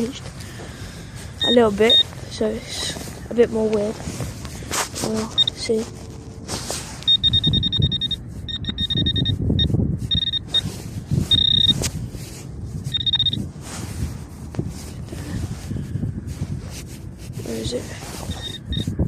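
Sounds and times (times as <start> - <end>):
low wind rumble: 0.0 - 19.0
pulsing electronic alarm tone: 1.4 - 2.1, 7.1 - 10.7, 11.3 - 11.8, 12.9 - 13.4.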